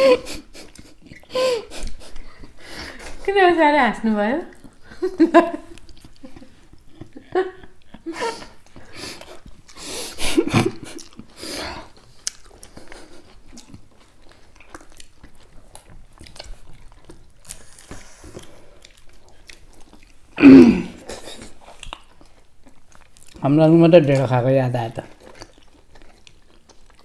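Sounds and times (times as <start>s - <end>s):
people chewing food: 0.0s - 3.3s, 4.4s - 27.0s
food crunching: 4.5s - 27.0s
laughter: 4.9s - 8.6s, 10.2s - 11.0s
wet mouth clicks: 20.9s - 22.4s.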